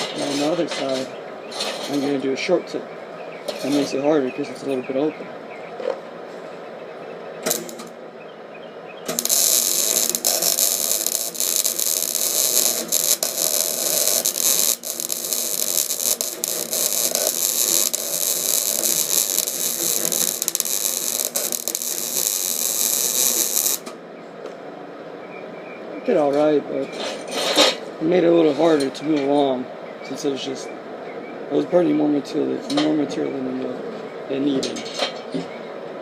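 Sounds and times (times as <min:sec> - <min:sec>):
welding arc crackling sizzle: 0:07.4 - 0:08.0, 0:09.1 - 0:24.0.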